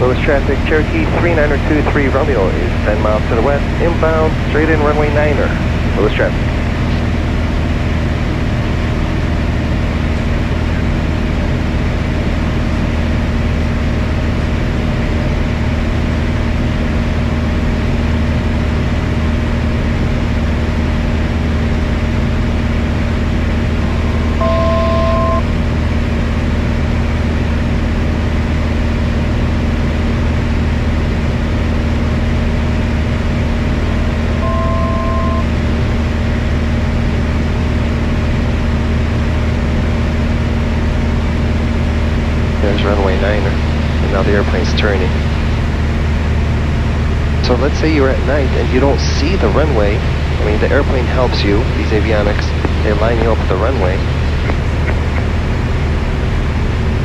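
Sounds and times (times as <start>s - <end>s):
aircraft engine and propeller droning: 0.0s - 57.0s
two-tone electronic beeps: 24.1s - 25.5s, 34.3s - 35.6s.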